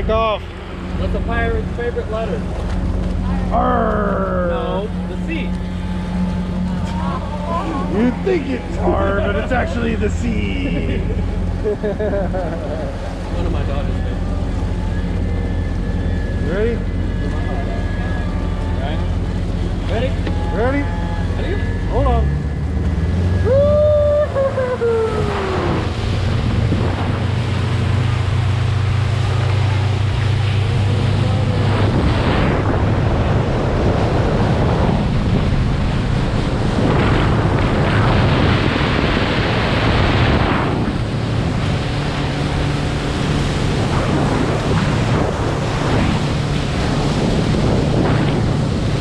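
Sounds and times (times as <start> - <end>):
boat engine droning: 0.0 - 49.0
water rushing past hull: 0.0 - 49.0
wind buffeting the microphone: 22.6 - 49.0.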